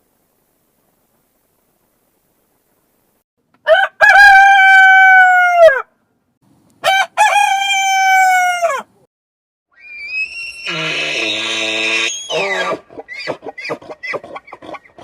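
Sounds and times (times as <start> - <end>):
rooster crowing: 3.6 - 5.9, 6.8 - 8.9.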